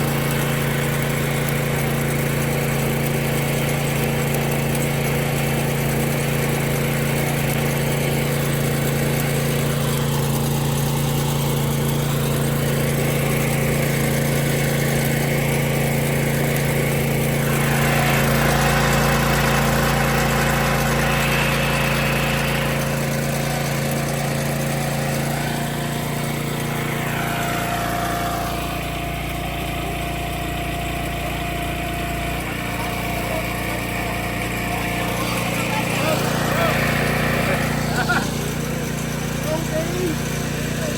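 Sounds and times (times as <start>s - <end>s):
small engine running: 0.0s - 40.9s
rough noisy hiss: 17.3s - 29.1s.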